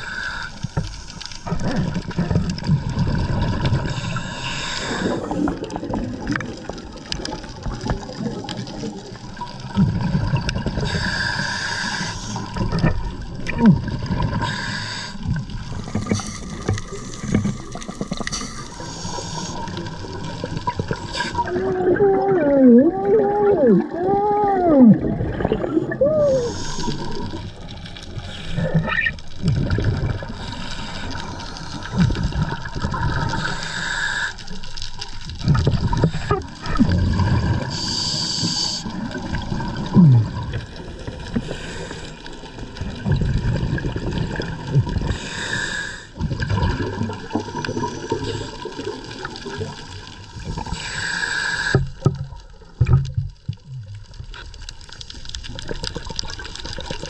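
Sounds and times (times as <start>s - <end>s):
regulator hiss on inhale: 0.0s - 1.5s, 3.8s - 5.6s, 10.8s - 12.6s, 14.4s - 19.9s, 26.4s - 27.4s, 30.3s - 32.4s, 33.2s - 34.8s, 37.6s - 38.9s, 41.3s - 42.5s, 45.1s - 46.2s, 47.6s - 48.9s, 50.6s - 52.0s
exhaled bubbles gurgling: 0.0s - 57.0s.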